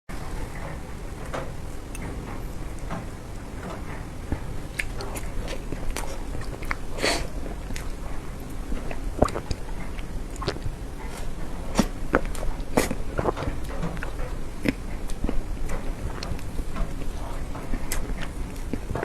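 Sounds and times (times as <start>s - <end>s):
mouth clicks and smacks: 0.5s - 19.0s
cake being bitten and chewed: 4.3s - 19.0s.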